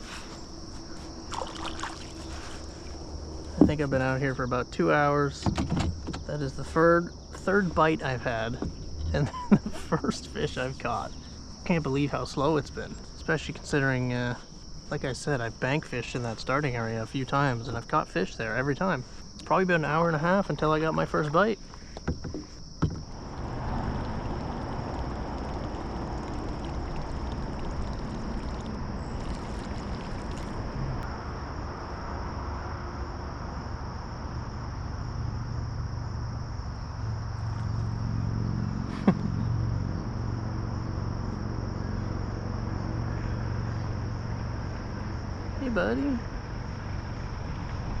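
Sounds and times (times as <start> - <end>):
distant road traffic rumble: 0.0 - 48.0
insects chirring: 0.0 - 48.0.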